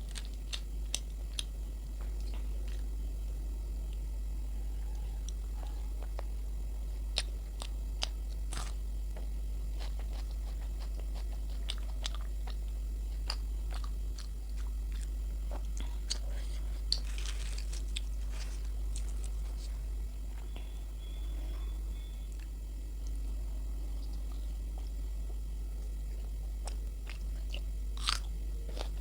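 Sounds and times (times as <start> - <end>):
steady low hum: 0.0 - 29.0
close chewing: 4.8 - 21.7, 23.9 - 29.0.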